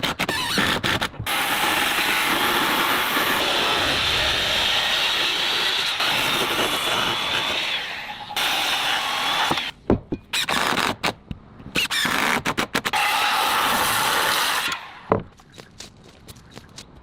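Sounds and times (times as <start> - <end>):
power tool running: 1.3 - 9.7.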